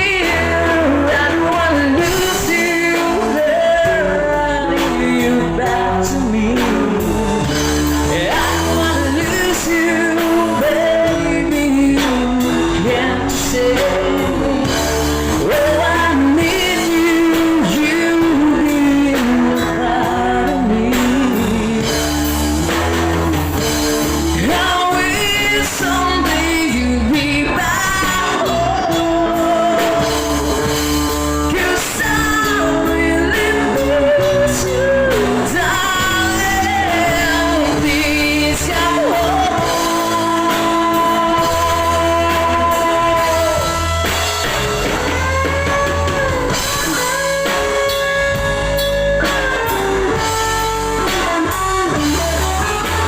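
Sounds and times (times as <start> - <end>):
bass: 0.0 - 53.0
drums: 0.0 - 53.0
guitar: 0.0 - 53.0
lead vocal singing: 0.0 - 53.0.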